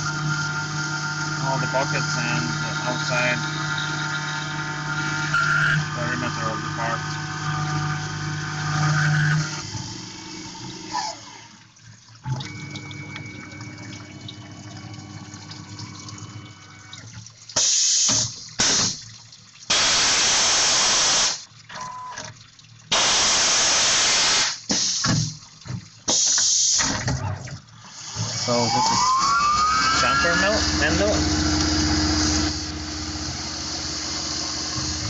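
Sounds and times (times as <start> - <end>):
steady machine tone: 0.0 - 8.8, 28.4 - 35.0
mill spindle humming: 0.0 - 11.3, 28.0 - 35.0
hissing coolant spray: 19.7 - 21.5, 22.9 - 25.4, 26.1 - 26.8.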